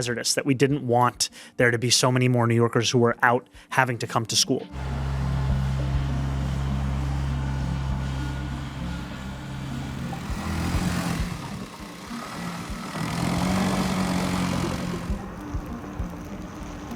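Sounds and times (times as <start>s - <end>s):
low engine hum: 4.7s - 16.9s
vehicles passing: 4.7s - 16.9s.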